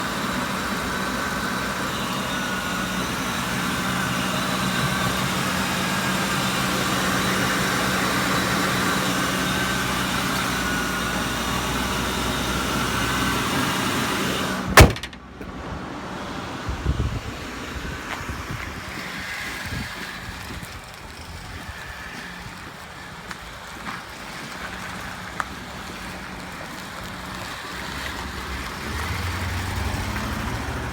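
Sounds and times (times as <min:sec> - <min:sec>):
sharp loud click: 0:14.8 - 0:15.5.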